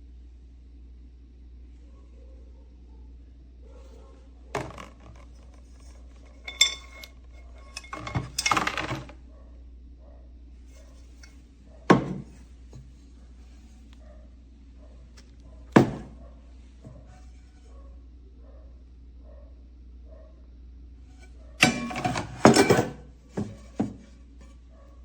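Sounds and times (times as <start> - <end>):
pots and pans knocking and clinking: 4.6 - 5.2, 6.3 - 9.1, 11.9 - 12.4, 15.8 - 16.2, 21.6 - 24.1
rattling clatter of pans: 4.6 - 9.1, 15.8 - 16.2, 21.6 - 24.1
metallic ring: 6.3 - 8.9, 21.6 - 23.7.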